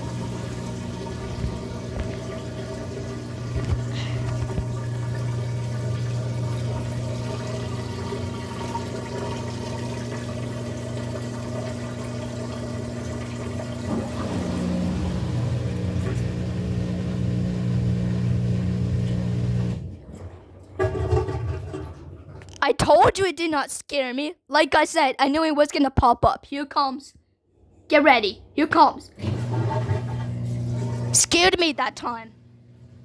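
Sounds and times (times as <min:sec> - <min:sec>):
water rushing out: 0:00.0 - 0:19.7
washer drain pump humming: 0:00.0 - 0:22.6, 0:28.6 - 0:33.0.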